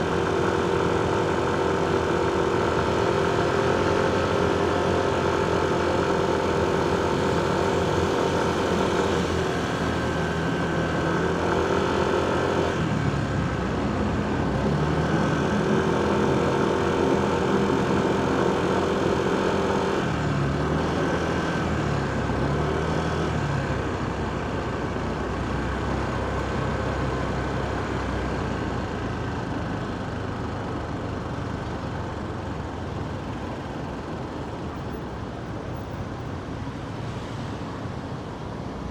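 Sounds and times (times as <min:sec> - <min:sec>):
motorcycle engine: 0:00.0 - 0:28.5
traffic din: 0:00.0 - 0:38.9.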